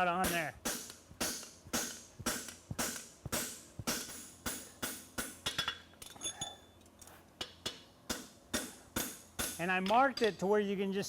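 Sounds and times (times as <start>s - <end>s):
hammer striking steel on anvil: 0.1s - 5.8s, 7.4s - 10.5s.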